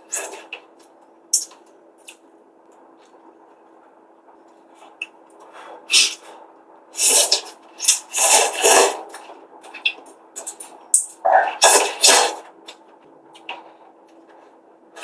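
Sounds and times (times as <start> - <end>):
noodles being slurped: 7.0 - 9.1.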